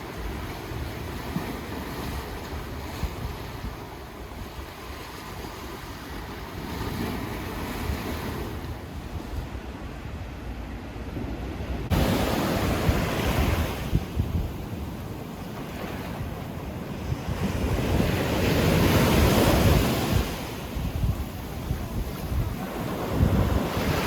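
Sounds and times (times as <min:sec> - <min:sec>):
wind rumbling on microphone: 0:00.0 - 0:24.0
sea waves washing onto shore: 0:11.8 - 0:24.0.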